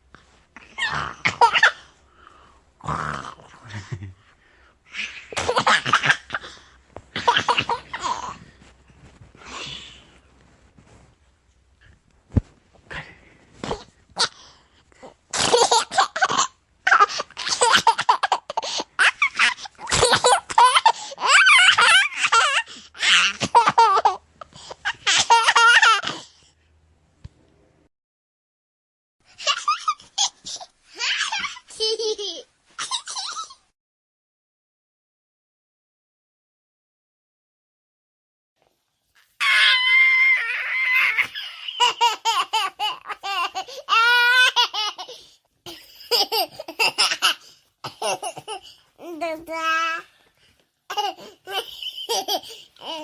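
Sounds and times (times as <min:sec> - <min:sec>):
baby laughing: 0:24.9 - 0:26.1, 0:40.4 - 0:50.0, 0:50.9 - 0:53.0
baby high-pitched squeal: 0:39.4 - 0:41.6.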